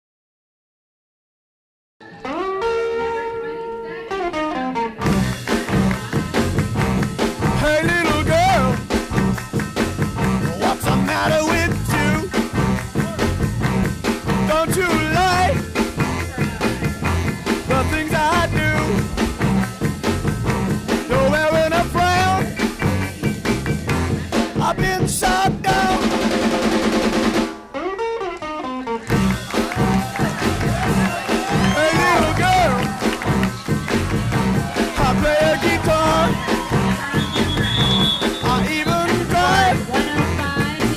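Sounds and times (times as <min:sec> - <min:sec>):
upbeat music with drum beat: 0:05.0 - 0:27.6, 0:29.0 - 0:40.9.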